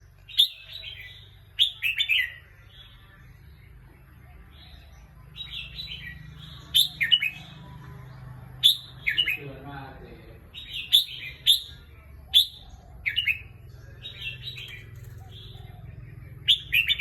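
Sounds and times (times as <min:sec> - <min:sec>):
bird singing whistled notes: 0:00.2 - 0:02.4, 0:08.6 - 0:09.5, 0:10.6 - 0:15.8.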